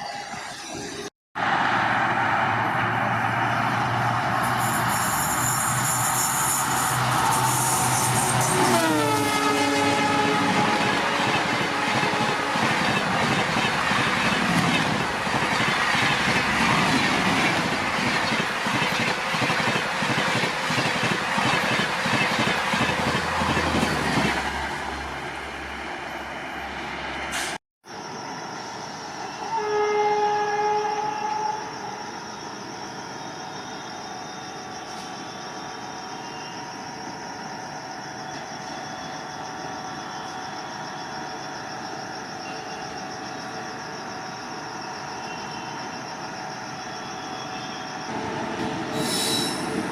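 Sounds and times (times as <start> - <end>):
train rushing past: 0.6 - 27.6, 47.8 - 49.9
locomotive horn: 8.2 - 12.8, 29.4 - 31.7.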